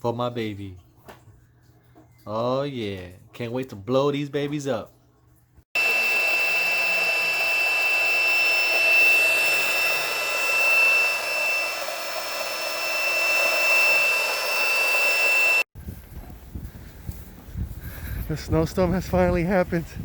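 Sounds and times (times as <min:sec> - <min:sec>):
electric air pump whining: 0:05.8 - 0:15.7.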